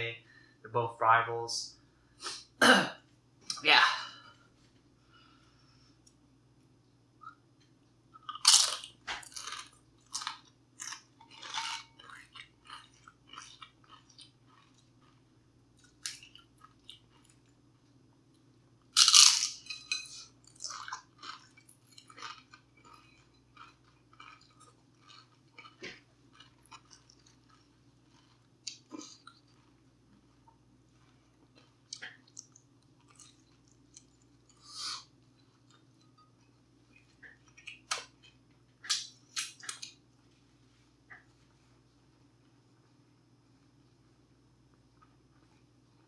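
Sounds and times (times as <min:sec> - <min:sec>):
crunchy food bitten: 0:08.2 - 0:15.2, 0:20.4 - 0:29.8
crunchy chewing: 0:08.2 - 0:17.6, 0:19.0 - 0:40.0.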